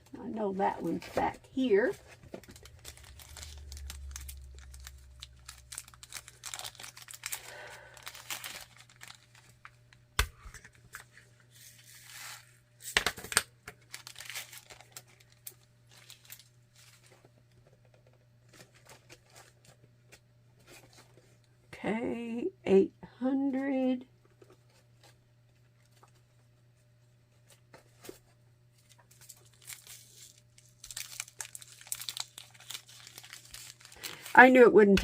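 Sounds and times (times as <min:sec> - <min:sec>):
plastic bags crinkling: 0:00.9 - 0:09.9, 0:13.1 - 0:17.3, 0:28.8 - 0:35.0.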